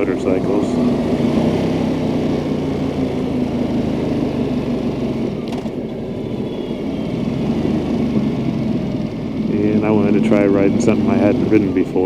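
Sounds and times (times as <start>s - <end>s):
engine crackle: 0.0s - 12.0s
motorcycle engine running: 0.0s - 12.0s
road and wind noise: 0.0s - 12.0s.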